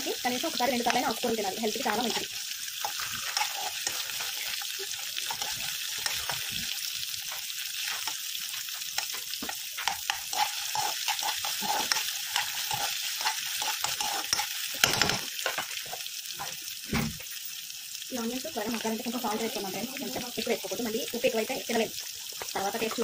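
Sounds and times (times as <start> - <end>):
onions sizzling in hot oil: 0.0 - 23.0
spoon scraping and knocking pan: 1.8 - 16.6.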